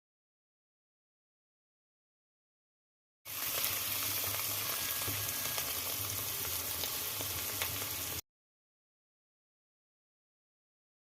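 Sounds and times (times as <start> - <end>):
mushrooms sizzling in a pan: 3.3 - 8.2.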